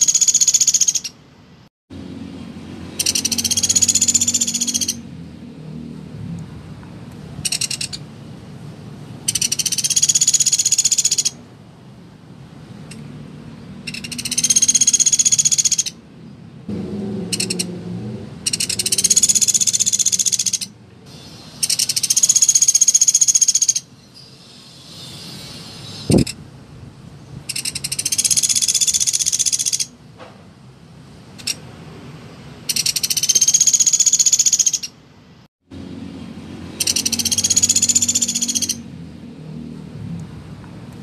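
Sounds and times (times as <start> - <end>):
woodpecker rattling calls: 0.0 - 1.2, 2.9 - 5.1, 7.4 - 8.1, 9.2 - 11.4, 13.8 - 16.0, 17.3 - 17.7, 18.4 - 26.4, 27.4 - 30.0, 31.4 - 31.6, 32.6 - 35.0, 36.7 - 38.9.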